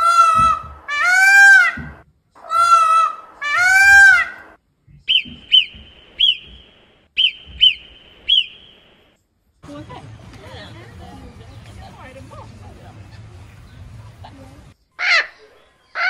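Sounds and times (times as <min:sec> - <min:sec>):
peacock calling: 0:00.0 - 0:09.1, 0:15.0 - 0:16.0.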